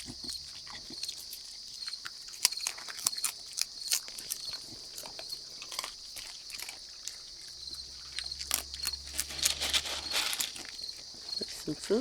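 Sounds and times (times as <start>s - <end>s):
raccoons chewing crunchily: 0.0s - 12.0s
high-pitched insect chorus: 2.6s - 12.0s.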